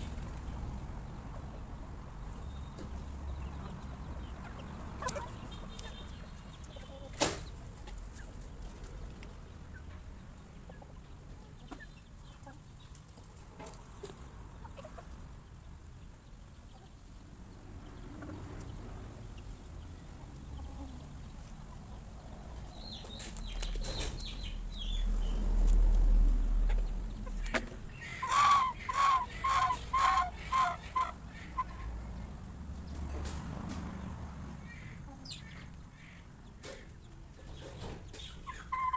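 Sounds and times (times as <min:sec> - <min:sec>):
chickens pecking and clucking: 0:00.0 - 0:38.9
chicken startled cackle: 0:28.0 - 0:31.8.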